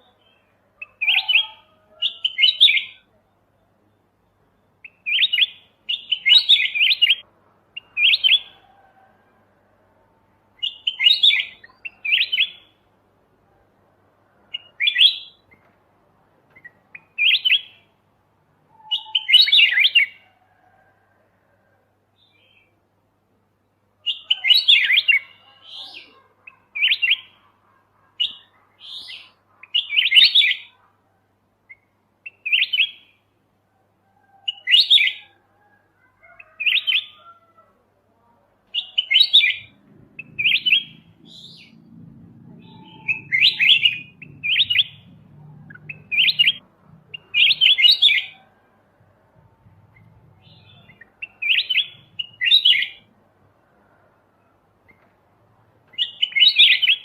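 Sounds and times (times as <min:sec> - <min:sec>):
faint low hum: 0:39.6 - 0:43.2
bulbul singing chirpy phrases: 0:45.7 - 0:48.3.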